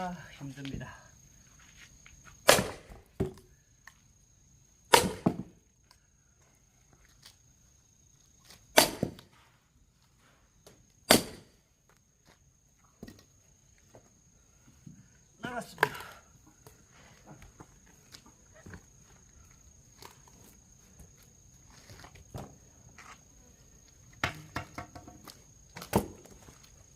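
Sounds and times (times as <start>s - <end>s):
axe chopping log: 2.4s - 3.4s, 4.9s - 5.6s, 8.8s - 9.3s, 11.1s - 11.5s, 24.2s - 26.3s.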